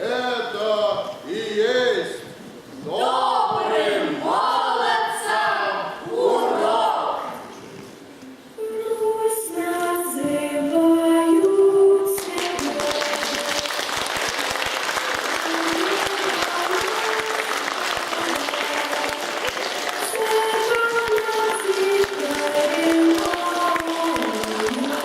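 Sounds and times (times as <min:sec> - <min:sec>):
music with singing: 0:08.6 - 0:13.8, 0:15.4 - 0:25.0
audience applauding: 0:12.2 - 0:25.0.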